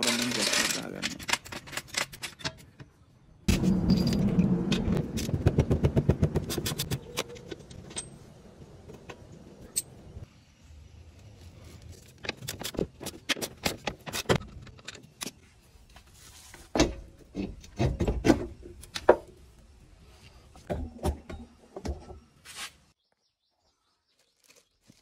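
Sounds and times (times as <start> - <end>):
metal tools clinking and rattling: 0.0 - 2.9, 7.0 - 8.3.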